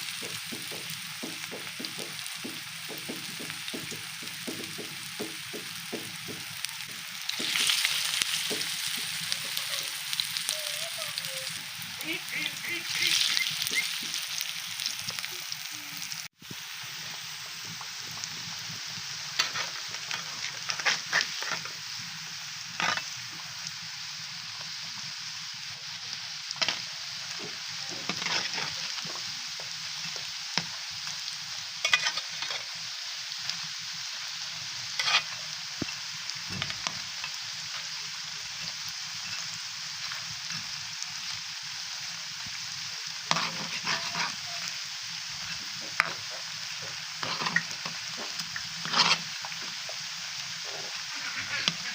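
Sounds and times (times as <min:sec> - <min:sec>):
food sizzling in hot oil: 0:00.0 - 0:51.9
spatula scraping a pan: 0:19.4 - 0:21.8, 0:22.8 - 0:23.2, 0:27.4 - 0:29.3, 0:31.8 - 0:32.8, 0:34.9 - 0:35.4, 0:43.3 - 0:44.7, 0:45.4 - 0:49.7, 0:50.6 - 0:51.9.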